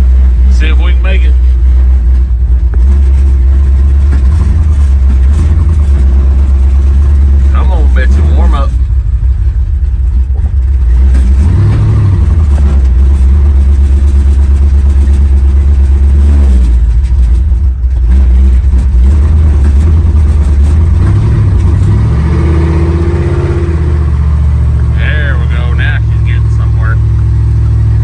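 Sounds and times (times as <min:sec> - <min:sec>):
engine revving with low rumble: 0:00.0 - 0:28.0
man talking: 0:00.5 - 0:01.4, 0:07.5 - 0:08.8, 0:24.9 - 0:27.1.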